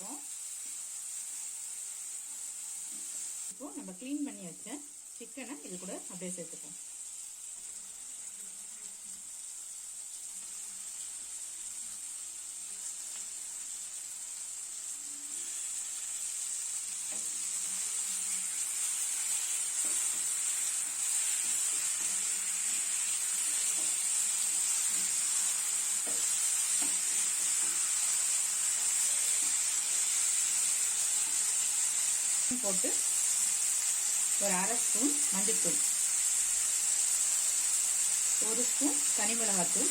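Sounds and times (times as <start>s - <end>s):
chicken frying in oil: 0.0s - 39.9s
spoon stirring in a pan: 15.5s - 32.4s.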